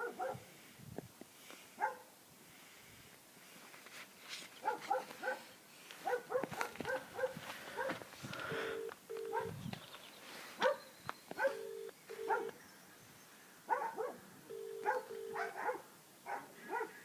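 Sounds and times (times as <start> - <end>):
telephone ringback tone: 8.5 - 9.7, 11.4 - 12.5, 14.5 - 15.4.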